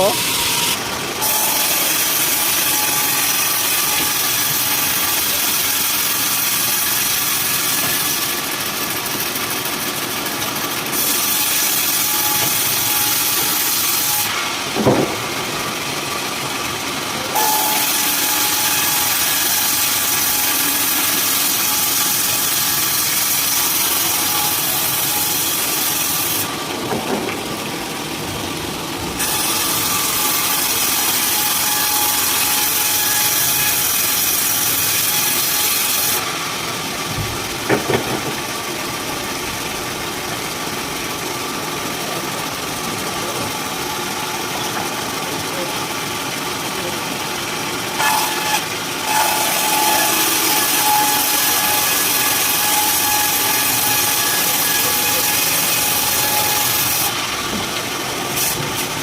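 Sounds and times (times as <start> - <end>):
saw cutting wood: 0.0 - 39.1, 41.4 - 59.0
knock: 37.2 - 38.4.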